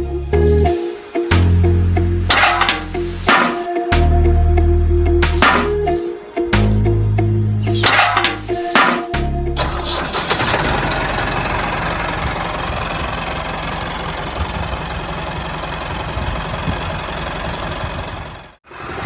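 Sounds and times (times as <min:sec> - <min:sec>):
small motor rattling rumble: 0:09.6 - 0:19.0.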